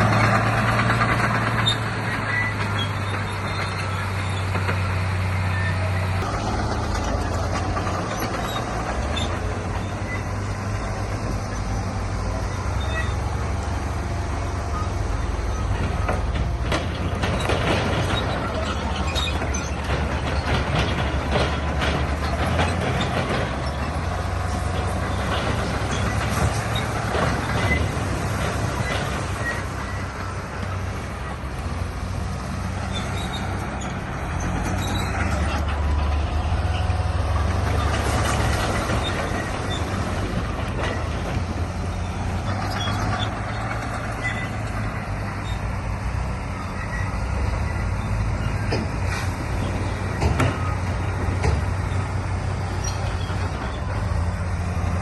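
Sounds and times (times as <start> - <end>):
bulldozer engine running: 0.0 - 55.0
clattering and grinding: 0.0 - 55.0.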